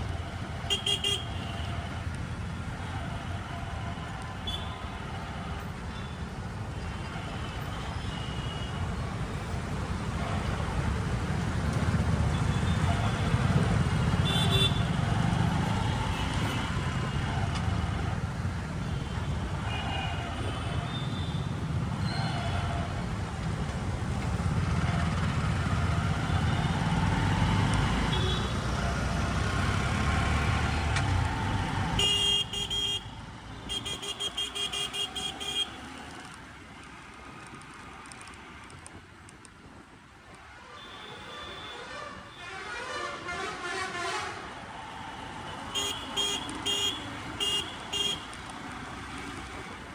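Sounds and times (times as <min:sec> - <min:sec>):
motorcycle engine and wind rumble: 0:08.8 - 0:22.0
vehicle horns tooting: 0:14.2 - 0:15.0, 0:28.0 - 0:28.6, 0:31.9 - 0:35.8, 0:40.8 - 0:44.6, 0:45.7 - 0:48.3.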